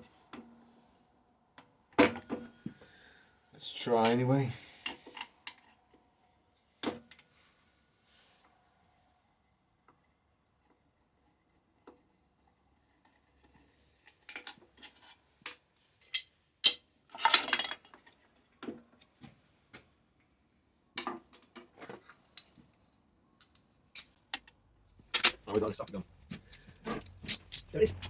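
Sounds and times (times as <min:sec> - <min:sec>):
metal parts rattling: 0:25.1 - 0:25.9, 0:26.6 - 0:28.0
metal tools clinking: 0:25.1 - 0:28.0.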